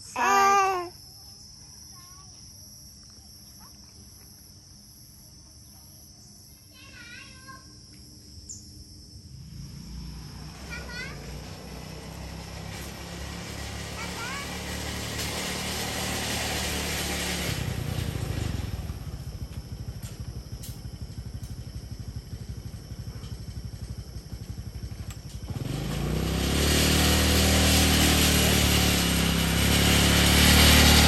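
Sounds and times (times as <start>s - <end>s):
small engine putter: 10.7s - 31.0s.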